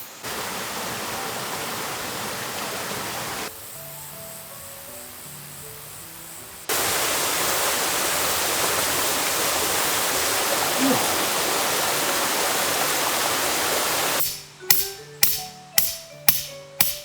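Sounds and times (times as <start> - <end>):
rushing mountain stream: 0.0 - 3.5, 6.7 - 14.2
soft music notes: 14.2 - 17.0.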